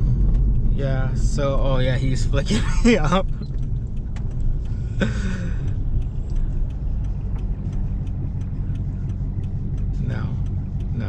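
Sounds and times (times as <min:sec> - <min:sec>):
car engine and road rumble: 0:00.0 - 0:11.0
faint regular ticks: 0:03.2 - 0:04.9, 0:05.6 - 0:11.0.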